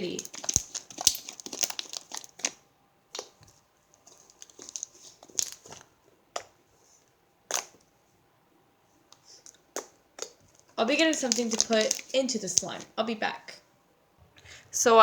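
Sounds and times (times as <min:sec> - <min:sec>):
slime squished and popping: 0:00.1 - 0:03.4, 0:07.5 - 0:07.8, 0:09.7 - 0:10.4, 0:11.0 - 0:12.7.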